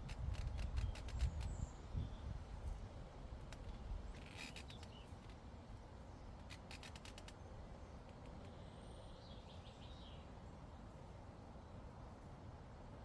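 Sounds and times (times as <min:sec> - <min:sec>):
wind rumble on microphone: 0:00.0 - 0:04.2.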